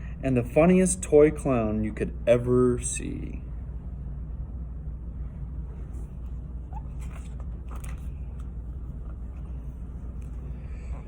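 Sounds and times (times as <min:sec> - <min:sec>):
low background hum: 0:00.0 - 0:11.0
faint clicks and rustles: 0:05.6 - 0:11.0.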